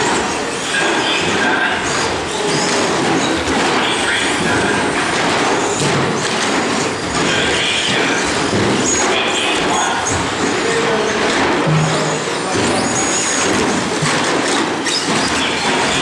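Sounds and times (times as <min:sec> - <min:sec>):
tyres clattering on track: 0:00.0 - 0:16.0.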